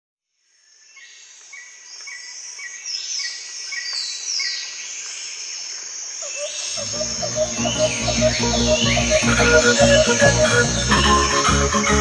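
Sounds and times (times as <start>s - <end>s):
high insect hiss: 0.4s - 12.0s
falling high-pitched bird calls: 6.2s - 12.0s.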